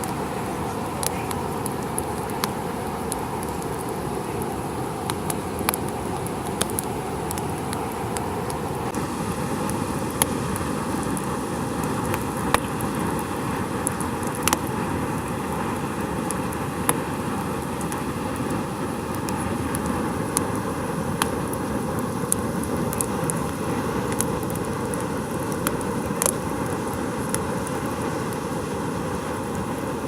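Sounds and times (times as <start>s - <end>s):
campfire crackling and popping: 0.0s - 30.0s
steady rushing noise: 0.0s - 30.0s.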